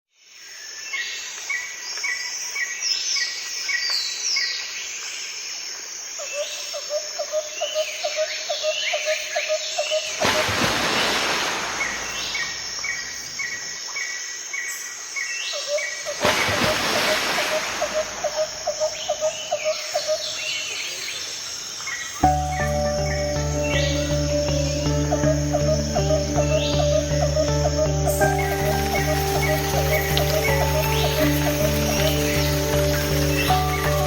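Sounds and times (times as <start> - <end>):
insect hum: 0.2 - 34.0
birds chirping and whistling: 22.2 - 34.0
low pulsing call: 22.2 - 34.0.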